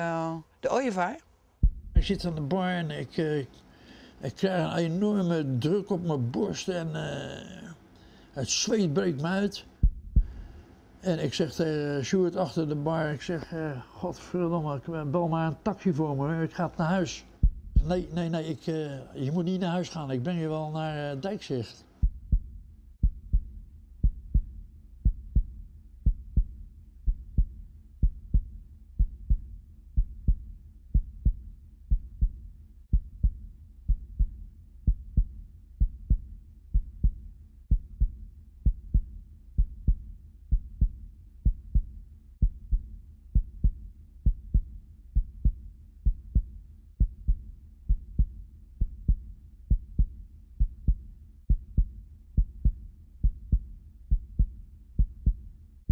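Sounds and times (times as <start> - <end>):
heartbeat thumps: 1.6 - 2.5, 9.7 - 10.7, 17.4 - 18.3, 22.0 - 55.9.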